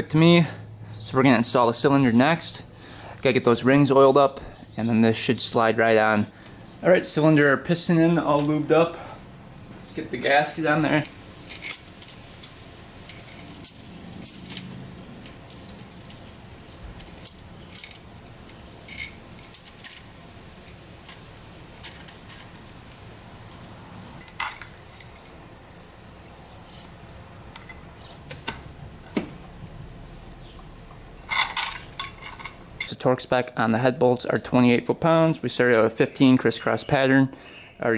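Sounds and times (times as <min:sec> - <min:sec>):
metallic clinks of tools and parts: 0:11.0 - 0:22.8, 0:31.3 - 0:32.9.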